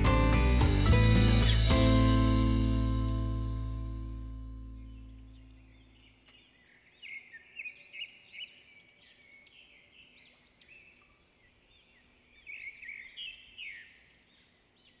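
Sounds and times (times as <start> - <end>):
small birds chirping: 4.4 - 15.0.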